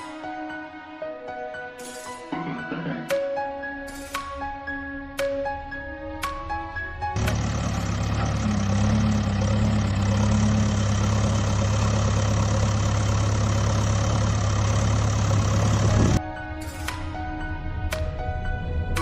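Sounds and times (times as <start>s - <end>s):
background music: 0.0s - 8.8s, 15.4s - 19.0s
vehicle engine running: 7.1s - 16.2s.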